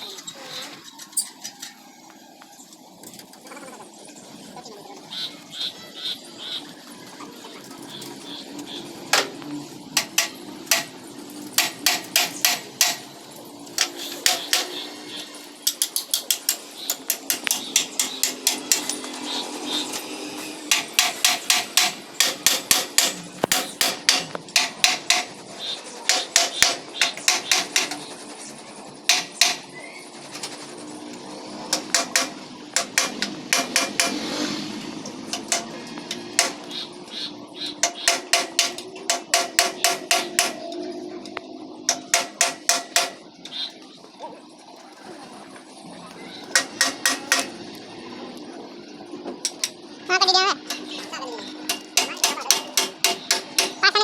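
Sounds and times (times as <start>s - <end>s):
hammer striking metal: 10.0s - 13.1s, 13.8s - 14.9s, 15.6s - 19.2s, 20.6s - 25.4s, 26.1s - 28.1s, 29.1s - 29.7s, 31.7s - 34.4s, 35.3s - 36.8s, 37.8s - 40.8s, 41.8s - 43.2s, 46.5s - 47.6s, 50.6s - 54.0s.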